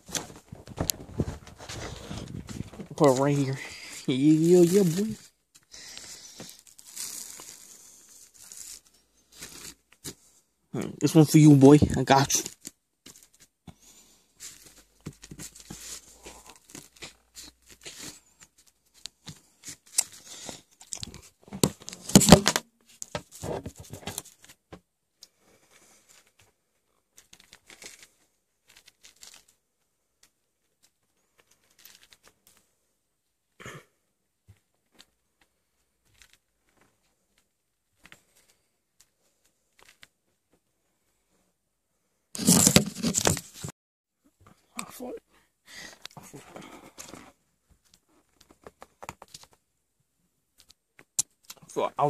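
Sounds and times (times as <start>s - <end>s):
bread and wrapping crinkling: 0.0s - 10.4s, 11.4s - 24.7s, 25.6s - 32.6s, 34.8s - 40.3s, 42.4s - 43.7s.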